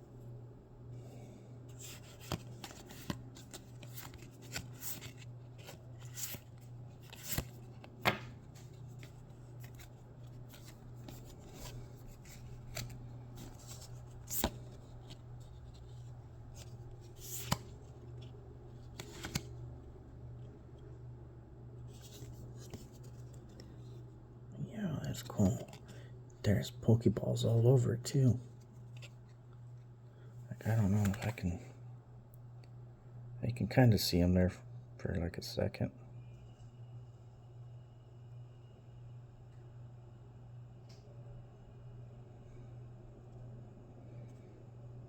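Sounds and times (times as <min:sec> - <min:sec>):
steady low hum: 0:00.0 - 0:45.0
trading cards rustling and clicking: 0:01.7 - 0:19.6, 0:30.7 - 0:31.4.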